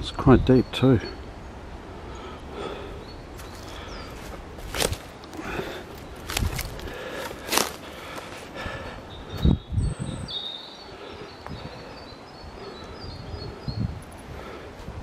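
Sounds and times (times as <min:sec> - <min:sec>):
wind buffeting microphone: 0:00.0 - 0:07.8, 0:08.6 - 0:15.0
rustles: 0:01.9 - 0:09.5.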